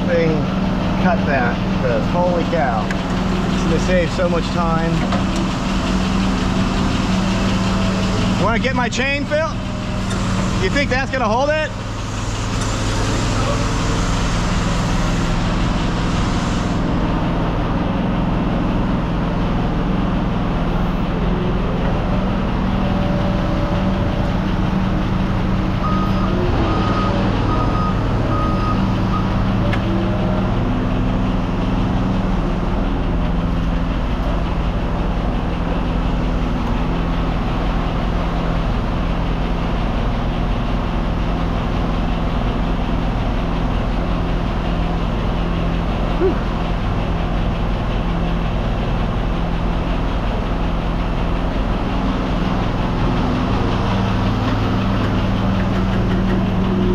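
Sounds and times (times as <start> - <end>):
heavy vehicle engine running: 0.0 - 56.9
reversing alarm beeps: 25.8 - 29.5.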